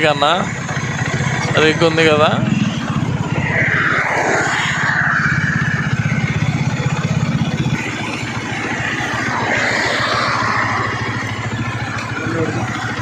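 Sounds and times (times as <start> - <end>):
motorcycle engine running: 0.0 - 13.0
rushing noise: 0.0 - 13.0.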